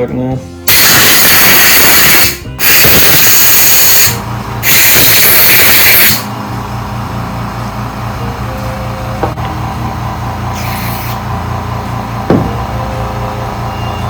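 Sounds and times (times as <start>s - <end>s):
compressed air hissing from blow gun: 0.7s - 6.3s, 10.6s - 11.2s.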